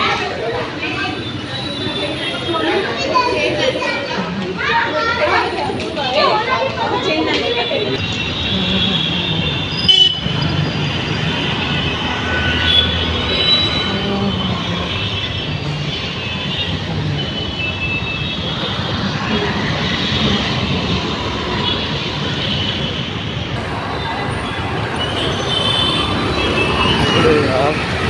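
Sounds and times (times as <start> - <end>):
electric train rumbling on rails: 8.0 - 28.0.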